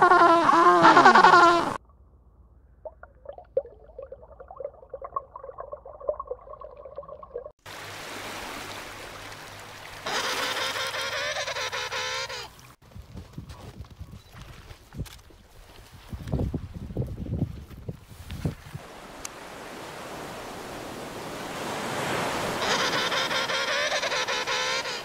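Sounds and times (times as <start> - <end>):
penguin call: 0.0 - 1.8, 10.1 - 12.5, 22.6 - 25.0.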